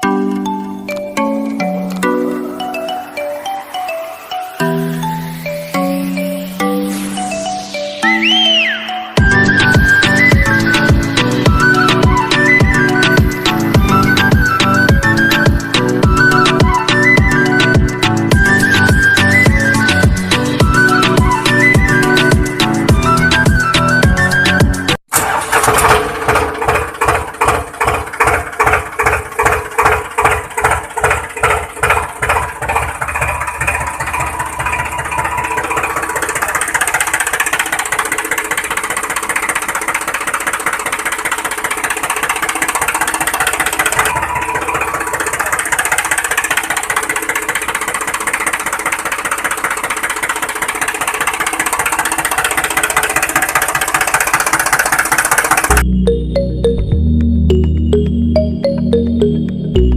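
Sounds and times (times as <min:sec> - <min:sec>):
tractor engine chugging: 0:08.2 - 0:56.0.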